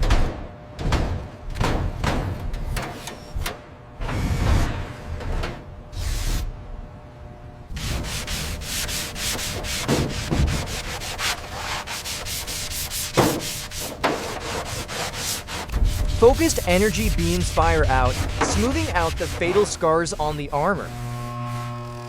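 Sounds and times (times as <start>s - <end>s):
scrubbing rusty metal: 7.8s - 22.0s.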